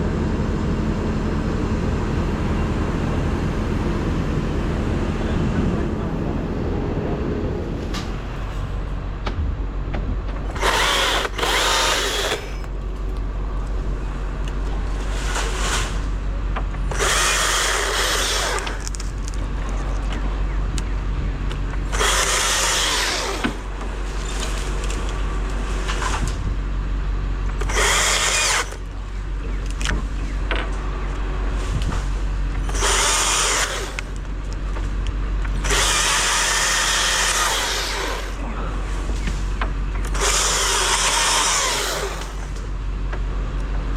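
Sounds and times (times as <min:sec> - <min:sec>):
chainsaw throttling: 0:10.5 - 0:12.7, 0:16.9 - 0:19.0, 0:21.8 - 0:25.0, 0:27.6 - 0:28.9, 0:32.6 - 0:34.2, 0:35.6 - 0:38.4, 0:40.0 - 0:42.6.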